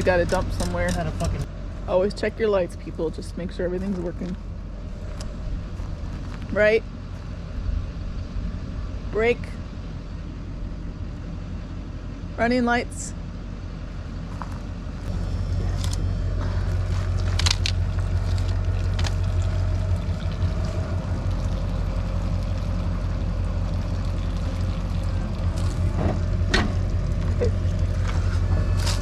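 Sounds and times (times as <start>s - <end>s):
vehicle engine humming: 0.0s - 29.0s.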